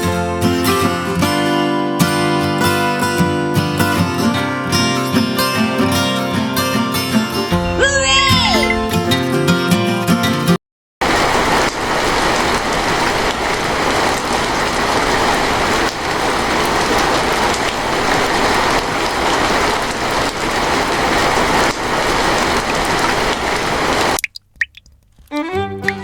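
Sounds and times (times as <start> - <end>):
rain falling: 11.0 - 26.0.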